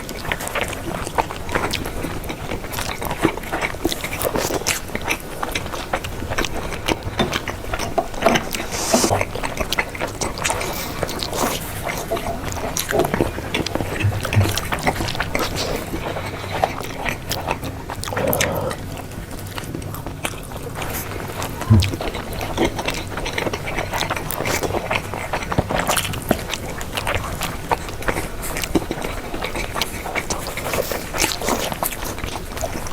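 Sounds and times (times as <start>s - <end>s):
person chewing crunchy food: 0.4s - 32.9s.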